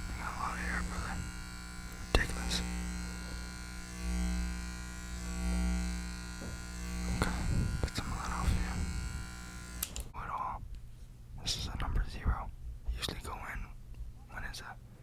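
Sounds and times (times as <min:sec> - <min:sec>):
electric hair clippers buzzing: 0:00.0 - 0:10.2.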